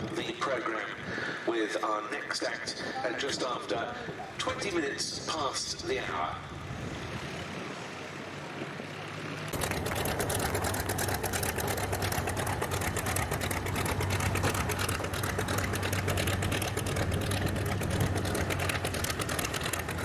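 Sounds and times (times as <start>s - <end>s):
piston aircraft engine running: 4.0s - 20.0s.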